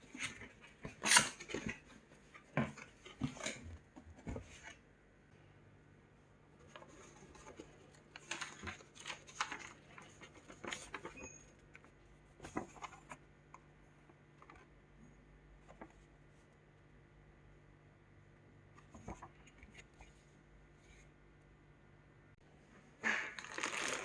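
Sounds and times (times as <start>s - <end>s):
small objects clicking and rustling: 23.4s - 24.0s.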